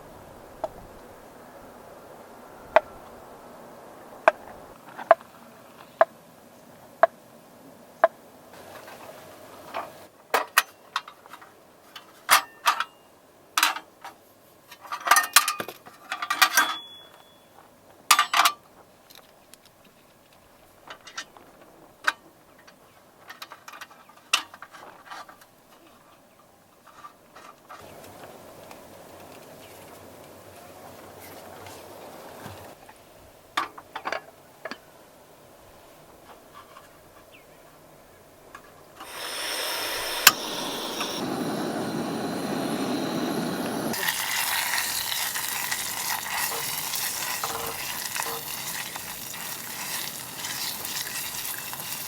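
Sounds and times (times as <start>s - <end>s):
small hard objects clattering: 43.9s - 52.0s.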